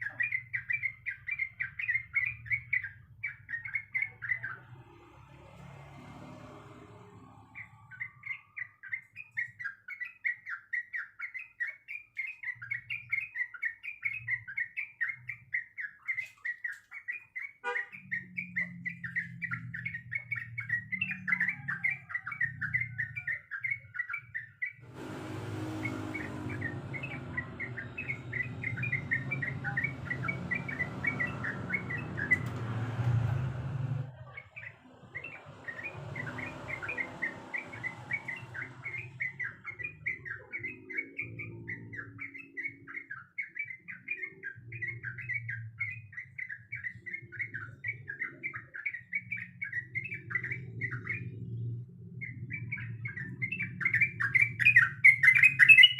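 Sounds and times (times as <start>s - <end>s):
bird chattering chirps: 7.6s - 32.7s, 52.3s - 55.9s
low rumble: 24.8s - 34.2s.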